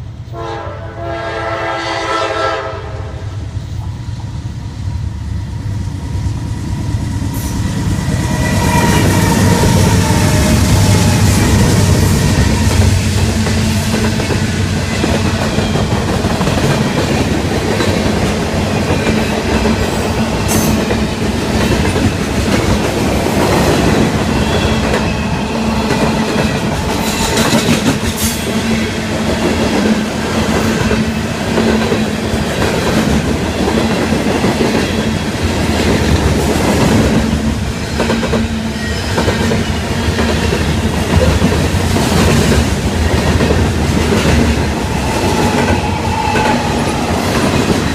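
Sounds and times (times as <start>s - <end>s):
train wheels clicking over rail joints: 6.2s - 37.4s.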